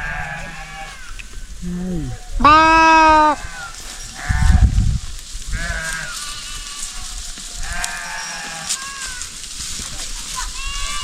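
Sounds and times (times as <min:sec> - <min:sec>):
livestock bleating: 0:00.0 - 0:04.8, 0:05.5 - 0:09.3.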